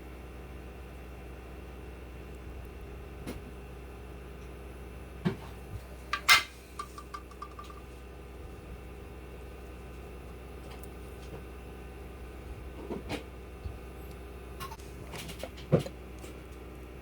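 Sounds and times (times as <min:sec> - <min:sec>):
small part rattling to rest: 0:06.2 - 0:07.9.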